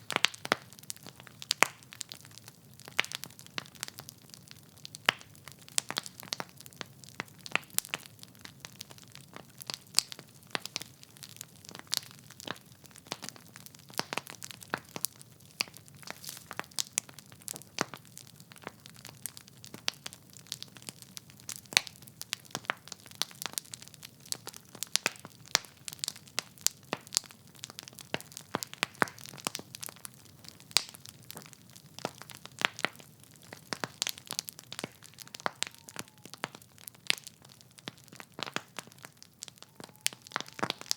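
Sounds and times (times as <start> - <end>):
logs crackling and popping: 0.0 - 40.9
flame hissing: 16.0 - 16.6.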